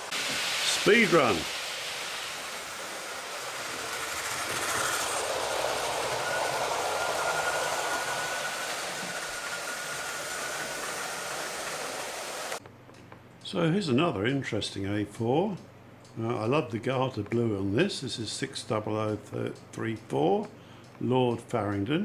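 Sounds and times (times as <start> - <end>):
model train wheels on rail: 0.0 - 12.6
faint motor whine: 0.0 - 21.1.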